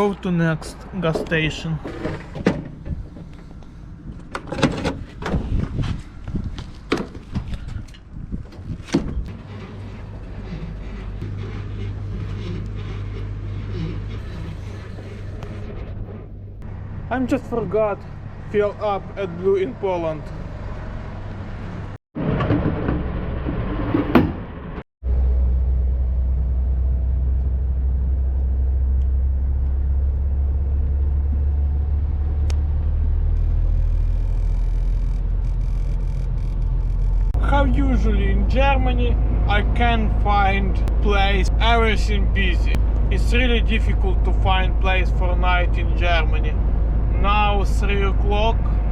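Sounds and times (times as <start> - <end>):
truck engine rumble: 0.0 - 48.9
truck diesel engine running: 25.0 - 48.9.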